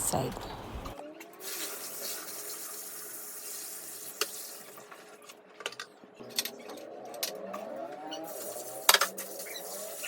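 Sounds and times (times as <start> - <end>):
water splashing in washing machine: 1.4 - 5.3.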